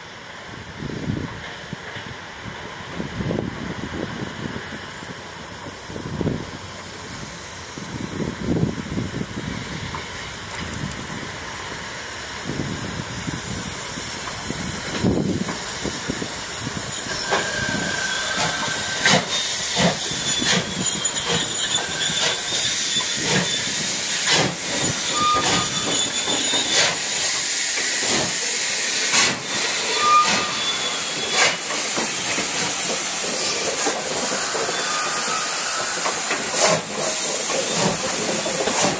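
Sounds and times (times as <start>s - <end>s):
steam locomotive hissing steam: 0.0s - 38.9s
wheels knocking and squealing: 14.3s - 27.2s, 29.2s - 38.9s.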